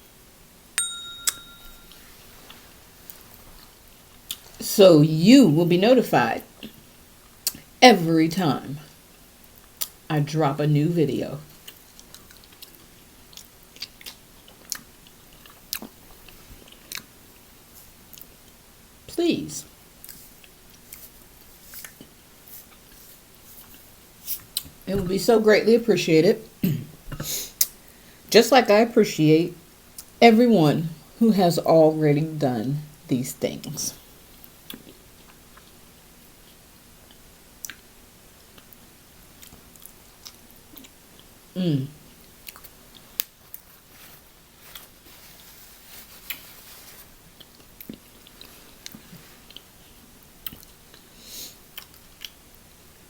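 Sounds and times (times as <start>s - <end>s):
faint chewing: 11.5s - 18.6s, 20.0s - 24.8s, 34.3s - 35.8s, 39.4s - 41.4s, 42.1s - 52.4s.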